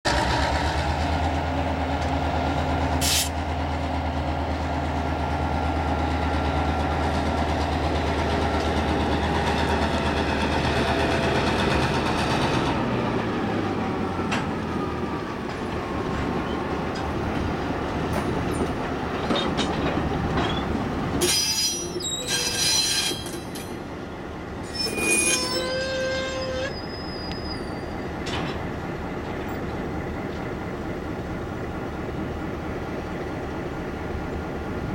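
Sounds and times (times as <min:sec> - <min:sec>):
diesel locomotive engine drone: 0:00.1 - 0:34.9
rumbling train wheels: 0:00.1 - 0:34.9
wheel squeals: 0:20.4 - 0:23.7, 0:24.6 - 0:28.2.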